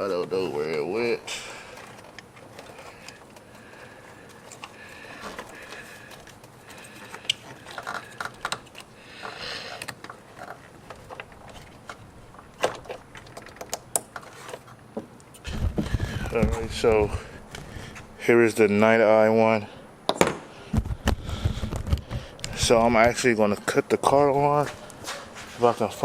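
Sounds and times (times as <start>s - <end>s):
plastic clicks and rattles: 12.6s - 14.6s.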